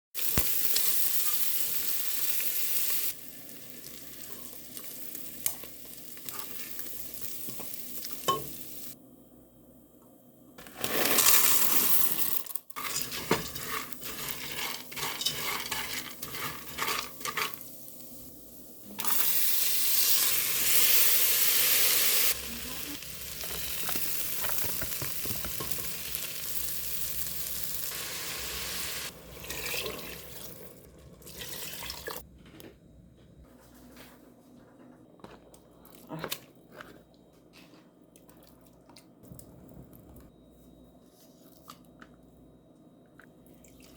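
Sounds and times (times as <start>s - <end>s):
food sizzling in a pan: 0.2s - 9.0s, 10.7s - 32.2s.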